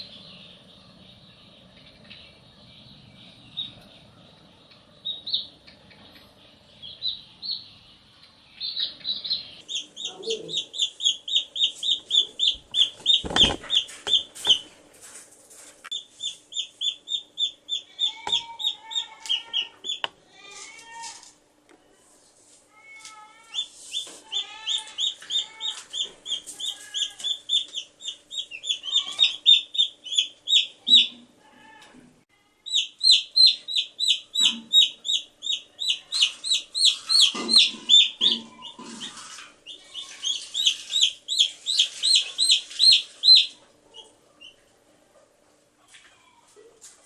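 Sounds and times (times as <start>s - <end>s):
baby chicks peeping: 0.0s - 21.2s, 22.8s - 44.7s.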